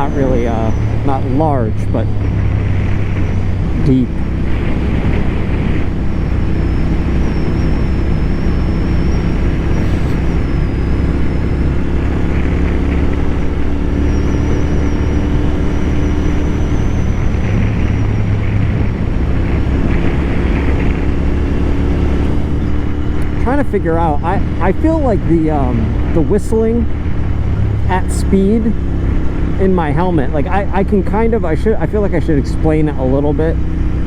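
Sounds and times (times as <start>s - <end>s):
motorcycle engine cruising: 0.0s - 34.0s
wind rushing: 8.5s - 12.6s.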